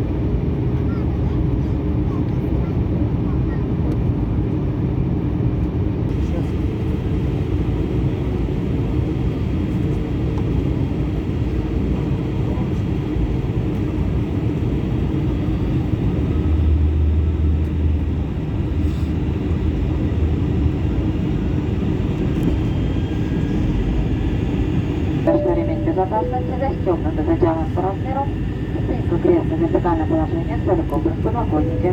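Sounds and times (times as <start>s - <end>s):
airliner engine and airflow rumble: 0.0s - 31.9s
deep low hum: 25.3s - 31.9s.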